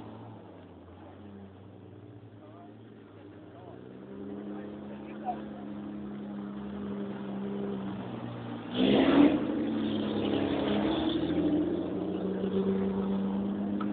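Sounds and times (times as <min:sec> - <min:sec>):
car engine revving hard: 0:03.9 - 0:13.9.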